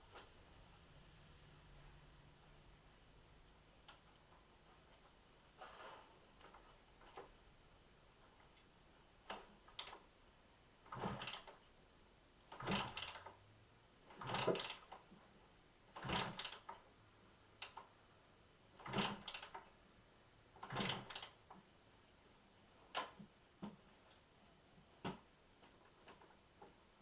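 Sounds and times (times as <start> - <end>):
engine kick-start clunk: 10.9 - 11.5, 12.5 - 13.3, 14.1 - 14.9, 16.0 - 16.7, 18.8 - 19.6, 20.6 - 21.4
engine turning over without firing: 14.1 - 14.8.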